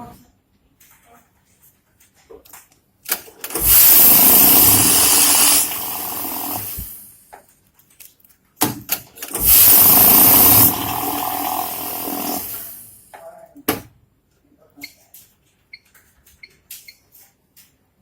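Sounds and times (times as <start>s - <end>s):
banknote counting machine whirring: 3.4s - 7.1s, 9.2s - 13.0s.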